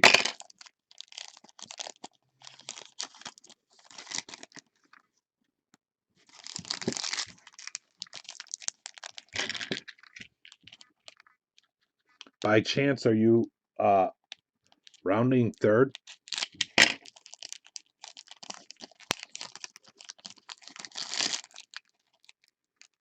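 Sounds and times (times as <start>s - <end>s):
card pack wrappers tearing: 0.0s - 4.6s, 6.3s - 10.9s, 15.9s - 22.3s
cards rustling: 0.0s - 5.0s.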